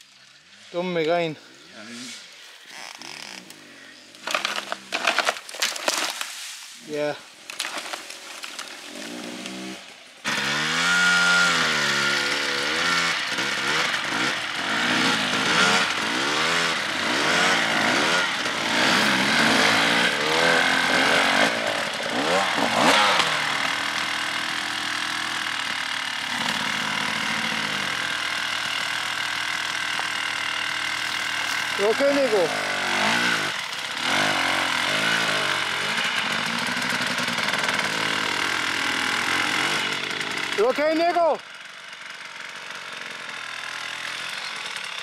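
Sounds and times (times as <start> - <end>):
motorcycle engine revving: 8.8 - 45.0.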